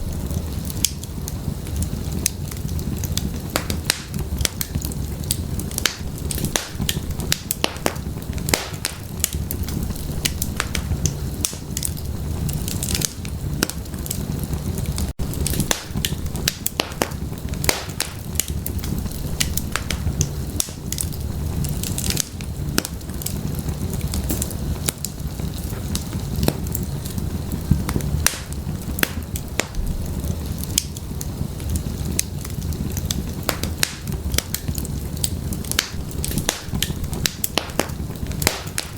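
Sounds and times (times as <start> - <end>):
low rumble of flames: 0.0 - 38.9
wood fire crackling and popping: 0.0 - 38.9.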